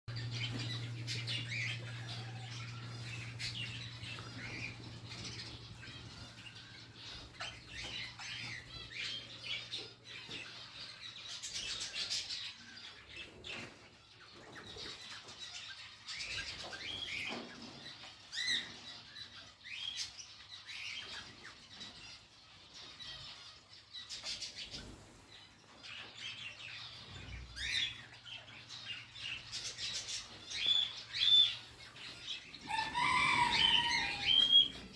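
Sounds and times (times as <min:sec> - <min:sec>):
steady low hum: 0:00.1 - 0:08.9
birds chirping and calling: 0:00.1 - 0:34.9.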